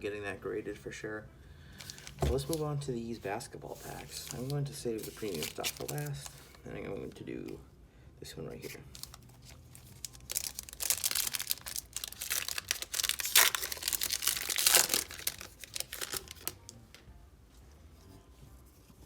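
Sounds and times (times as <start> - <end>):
wrapper crinkling and tearing: 1.8 - 2.6, 3.8 - 6.6, 8.9 - 16.9.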